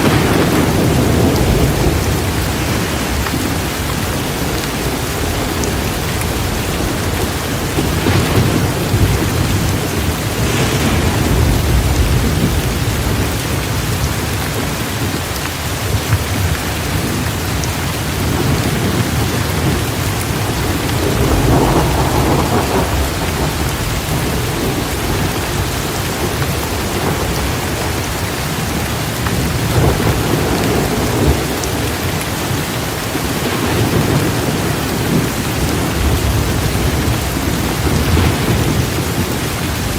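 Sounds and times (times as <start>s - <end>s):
rolls of thunder: 0.0s - 3.6s, 4.8s - 13.8s, 18.2s - 28.2s
heavy rain pouring: 0.0s - 39.9s.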